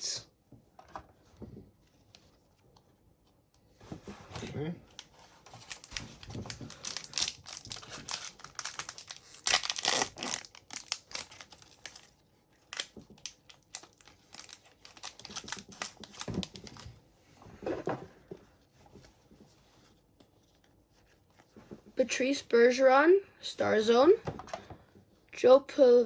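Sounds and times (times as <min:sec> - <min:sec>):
cards rustling: 0:03.8 - 0:16.9
foil wrapper crinkling and tearing: 0:05.0 - 0:16.9.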